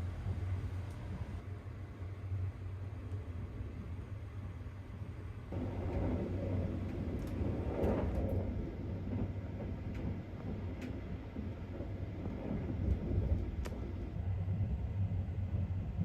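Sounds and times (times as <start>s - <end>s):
train running rumble: 0.0s - 16.0s
faint ticks: 12.9s - 13.8s.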